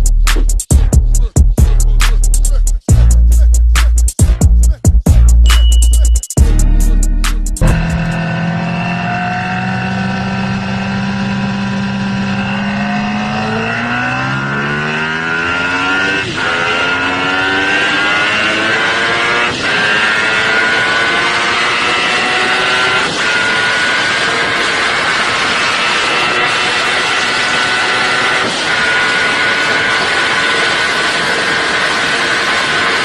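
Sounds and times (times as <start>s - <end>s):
motorcycle engine accelerating: 6.4s - 33.0s.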